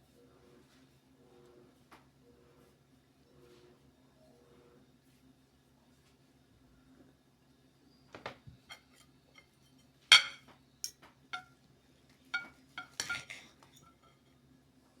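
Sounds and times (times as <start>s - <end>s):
cutlery and dishes clinking: 8.6s - 9.5s, 10.1s - 11.5s, 12.4s - 14.2s.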